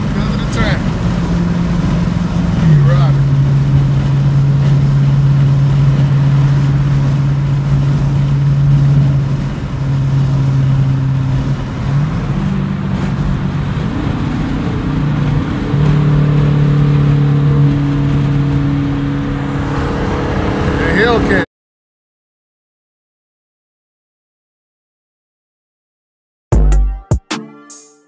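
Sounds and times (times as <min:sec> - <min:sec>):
car engine and exhaust droning: 0:00.0 - 0:21.4
tyre and road noise: 0:00.0 - 0:21.5.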